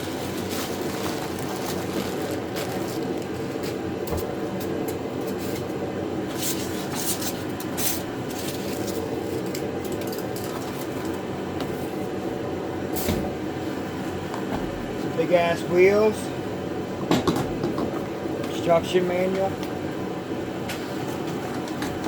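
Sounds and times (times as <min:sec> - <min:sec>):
cardboard packaging rustling: 0:00.0 - 0:03.8
steady background hum: 0:00.0 - 0:22.0.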